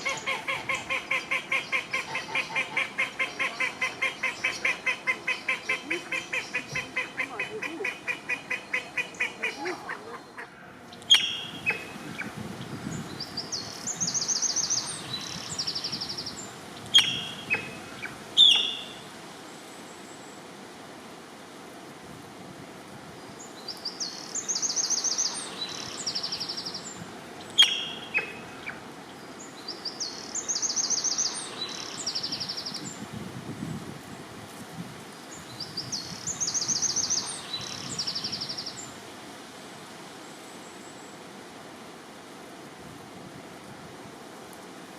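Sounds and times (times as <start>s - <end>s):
ducks quacking: 0.0s - 10.6s.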